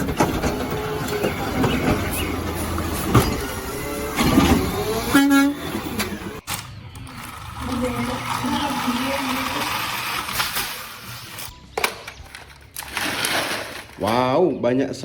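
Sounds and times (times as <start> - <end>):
vehicle horn toot: 5.0 - 5.9.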